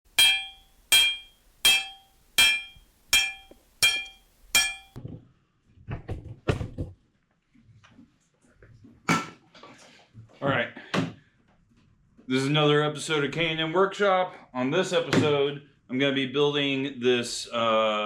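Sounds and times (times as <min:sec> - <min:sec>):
metal being struck: 0:00.1 - 0:05.0.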